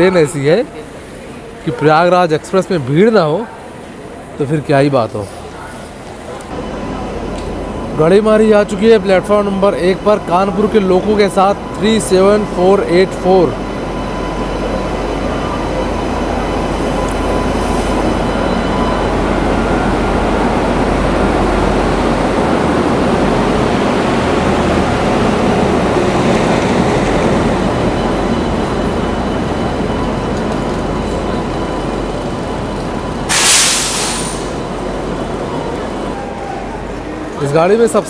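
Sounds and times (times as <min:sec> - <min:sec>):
train rumbling: 0:02.4 - 0:38.0
air hiss: 0:33.3 - 0:34.7.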